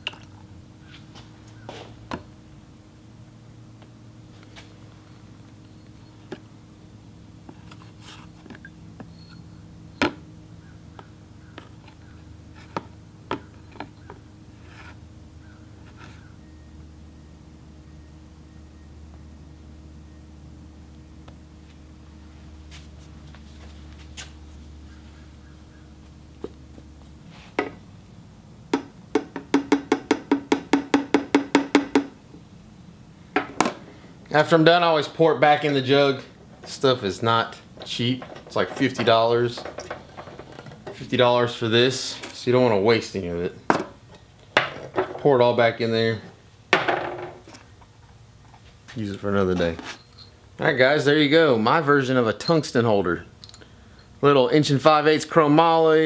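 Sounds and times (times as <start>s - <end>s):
steady low hum: 0.0s - 56.0s
hard objects knocking and clicking: 28.7s - 32.2s, 33.4s - 33.8s, 37.8s - 41.0s.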